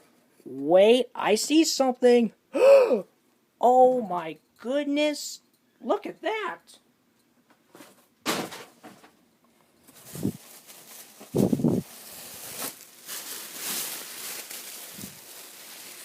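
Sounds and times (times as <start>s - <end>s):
plastic packaging crinkling: 9.8s - 16.0s.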